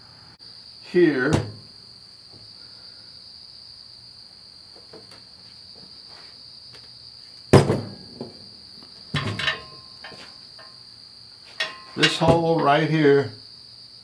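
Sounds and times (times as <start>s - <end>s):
metallic clank: 9.1s - 10.8s, 11.5s - 12.6s
steel parts clinking: 9.2s - 10.8s, 11.5s - 12.6s.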